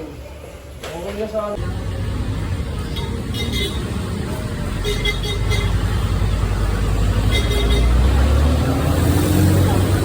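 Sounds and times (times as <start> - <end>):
road vehicle and traffic rumble: 0.0 - 10.0.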